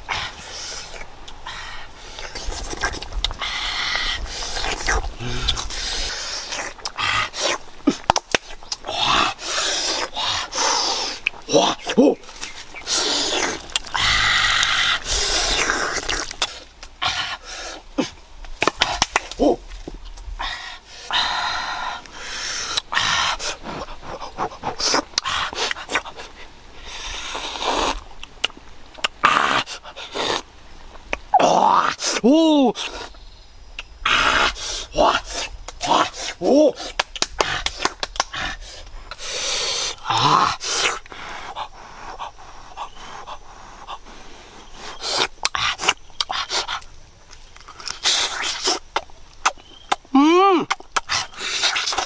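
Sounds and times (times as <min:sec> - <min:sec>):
mouth clicks and smacks: 0:02.1 - 0:17.0, 0:18.0 - 0:20.3, 0:22.0 - 0:26.3, 0:26.9 - 0:31.4, 0:32.8 - 0:52.0
person breathing hard: 0:03.4 - 0:08.0, 0:12.8 - 0:18.2, 0:34.4 - 0:46.8.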